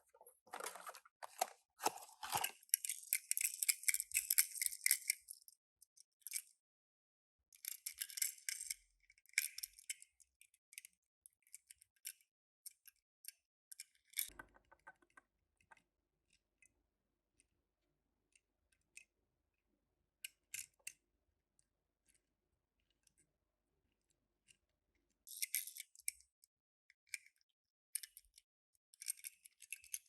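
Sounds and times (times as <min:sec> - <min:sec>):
packaging rustling: 0:00.0 - 0:02.6
toy cars clattering: 0:00.0 - 0:05.3
soft clicks of toy cars: 0:00.0 - 0:06.6, 0:07.5 - 0:17.6, 0:18.2 - 0:30.0.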